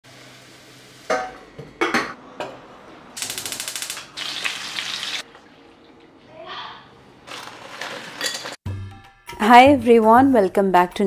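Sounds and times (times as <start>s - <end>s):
garlic and chillies frying in oil: 4.2s - 5.3s
kitchen utensils clattering: 7.2s - 8.6s.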